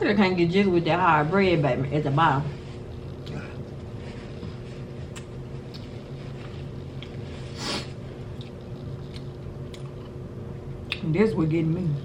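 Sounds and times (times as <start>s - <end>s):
steady low hum: 0.0s - 12.0s
person chewing: 2.8s - 10.2s.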